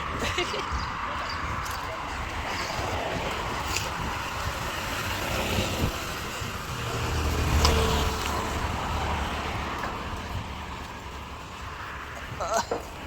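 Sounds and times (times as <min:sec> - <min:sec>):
traffic noise: 0:00.0 - 0:13.0
vehicle engine rumble passing: 0:01.9 - 0:12.3.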